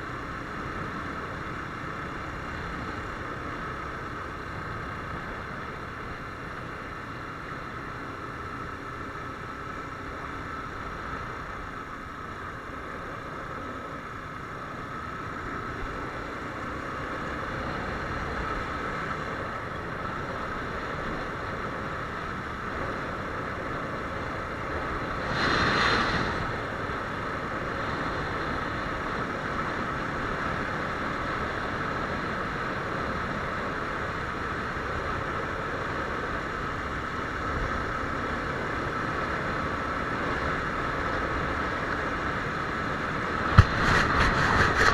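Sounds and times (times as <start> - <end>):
motorcycle engine running: 26.7 - 44.9
wind noise on microphone: 42.4 - 44.9.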